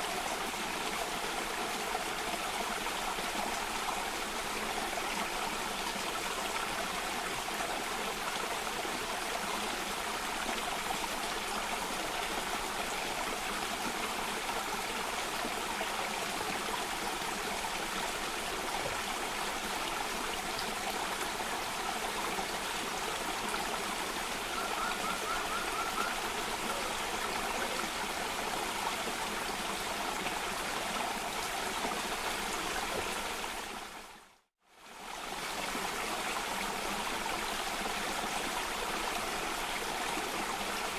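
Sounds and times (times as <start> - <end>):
rushing stream water: 0.0 - 40.9.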